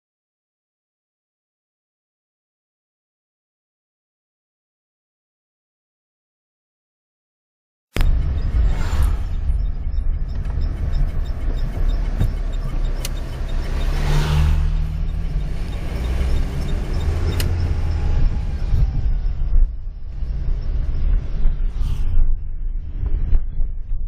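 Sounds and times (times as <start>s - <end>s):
wind buffeting microphone: 14.7s - 24.0s.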